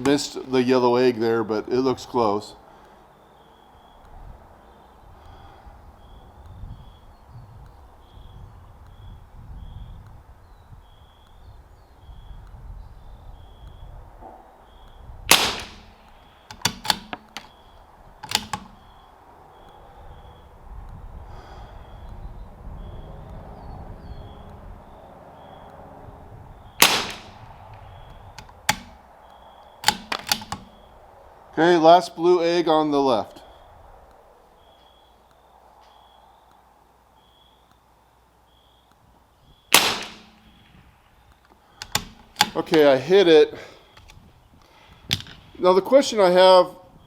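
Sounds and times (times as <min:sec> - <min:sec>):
rifle bolt metallic clicks: 0:15.3 - 0:17.6, 0:18.2 - 0:18.9, 0:26.8 - 0:30.9, 0:39.7 - 0:40.7, 0:41.3 - 0:42.9
rifle shots: 0:15.3 - 0:17.6, 0:26.7 - 0:29.0, 0:29.8 - 0:30.9, 0:39.7 - 0:40.7.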